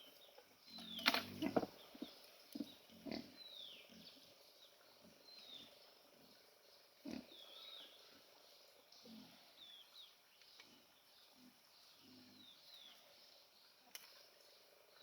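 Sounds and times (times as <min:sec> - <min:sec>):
pigs grunting: 0:00.8 - 0:01.8, 0:02.6 - 0:03.4, 0:07.0 - 0:07.6.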